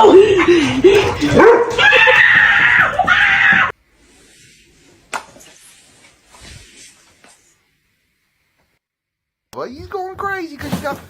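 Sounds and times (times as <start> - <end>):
high wailing cry: 0.0 - 3.7.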